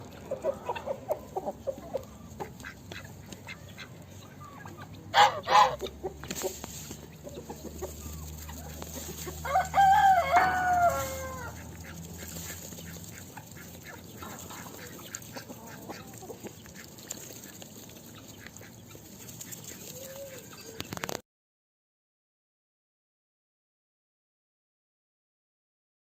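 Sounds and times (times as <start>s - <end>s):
rooster crowing: 9.2s - 11.6s.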